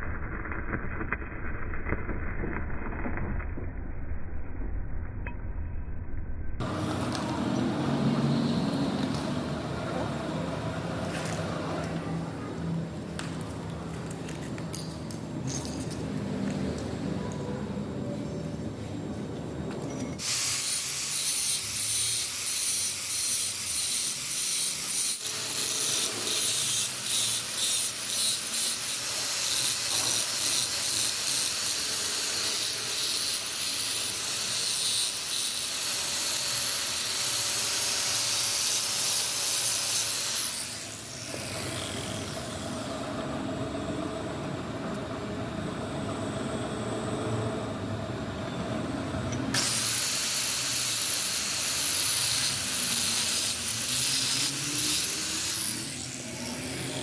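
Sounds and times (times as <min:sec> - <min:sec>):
grinder hissing on steel: 0:20.2 - 0:43.1, 0:49.5 - 0:57.0
grinder motor hum: 0:20.6 - 0:47.9, 0:48.9 - 0:57.0.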